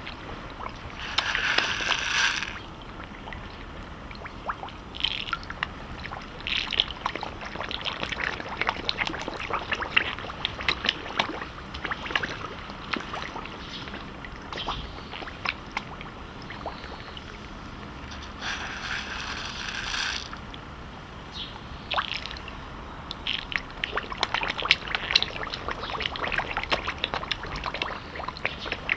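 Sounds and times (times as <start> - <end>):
fish feeding at water surface: 0.0 - 20.9, 21.6 - 28.9.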